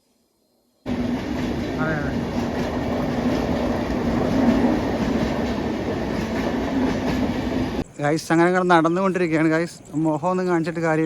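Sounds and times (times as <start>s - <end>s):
train wheels rumbling on rails: 0.9s - 7.9s.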